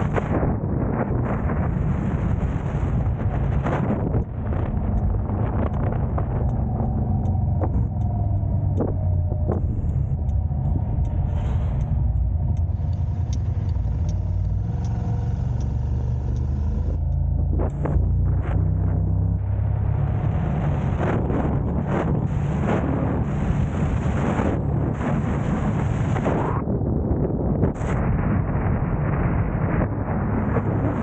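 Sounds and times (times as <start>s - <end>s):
car engine and road rumble: 0.0s - 31.0s
faint clicks and knocks: 4.1s - 18.6s.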